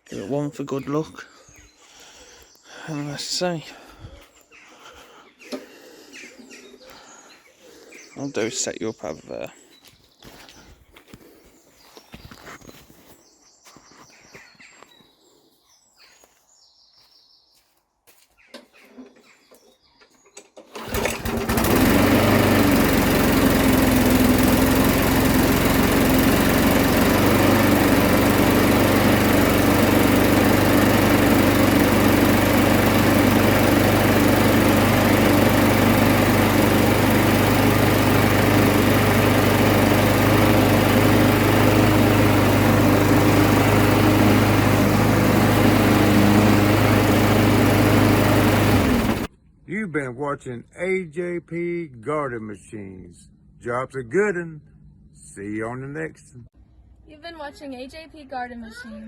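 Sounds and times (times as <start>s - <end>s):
lawn mower pull-start: 4.9s - 6.6s, 18.5s - 49.3s
lawn mower engine running: 20.6s - 49.3s.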